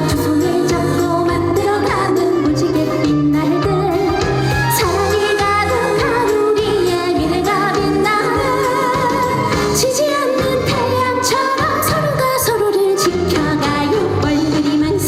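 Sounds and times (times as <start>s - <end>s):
bass: 0.0s - 15.0s
woman singing into a microphone: 0.0s - 15.0s
steady drum beat: 4.6s - 12.0s.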